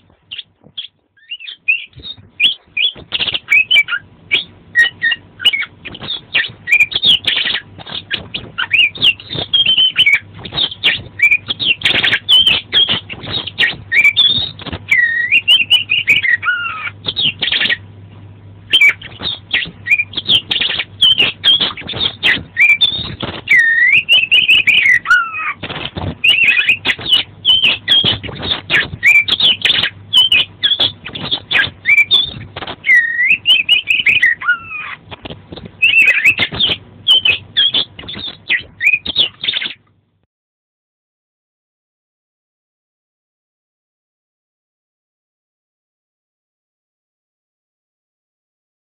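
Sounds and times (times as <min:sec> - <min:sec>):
bird singing whistles and chirps: 0:00.3 - 0:17.8, 0:18.7 - 0:25.6, 0:26.2 - 0:35.0, 0:35.8 - 0:39.8.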